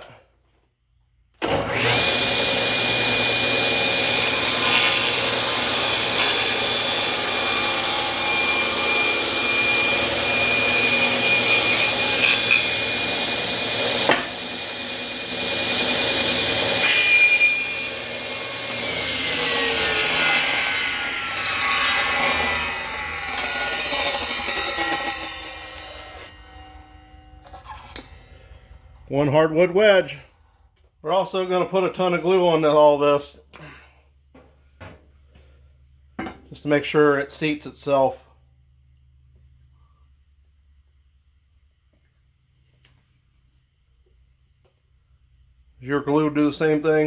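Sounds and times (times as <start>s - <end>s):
table saw cutting wood: 1.4s - 28.4s.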